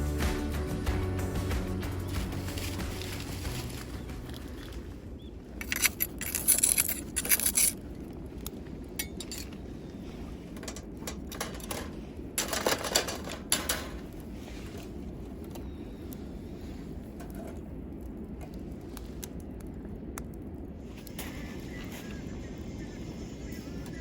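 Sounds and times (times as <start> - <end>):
metal cooking utensils clinking: 10.8 - 14.0.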